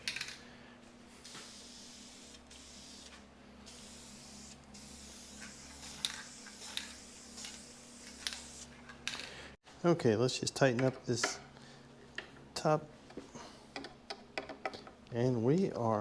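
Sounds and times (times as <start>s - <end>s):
spray paint hissing: 1.2s - 8.8s.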